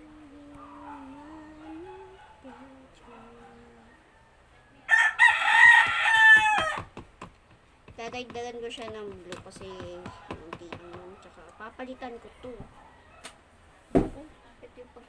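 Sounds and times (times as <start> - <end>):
person humming a tune: 0.0 - 2.9
rooster crowing: 3.2 - 6.9.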